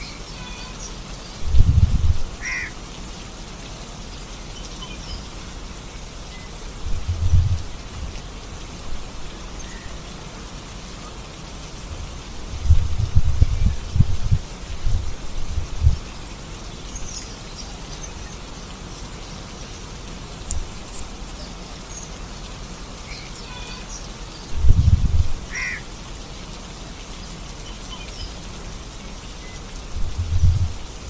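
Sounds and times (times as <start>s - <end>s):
rain falling: 0.0s - 31.0s
short bird calls: 2.4s - 2.7s, 25.5s - 25.8s
low rumbles: 6.9s - 8.1s, 30.0s - 31.0s.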